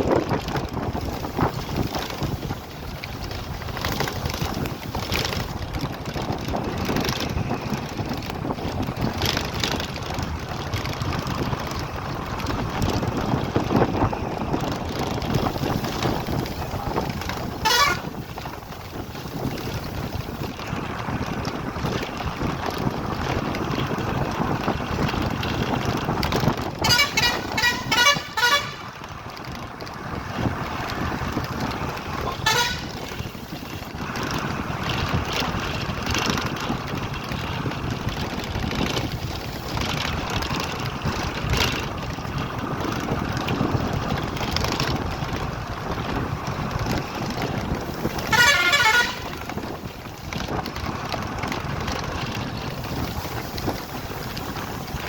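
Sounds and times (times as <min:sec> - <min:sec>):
steady rushing noise: 0:00.0 - 0:55.0
vehicle horns honking: 0:17.4 - 0:18.3, 0:26.8 - 0:29.0, 0:32.2 - 0:33.2, 0:48.1 - 0:49.5.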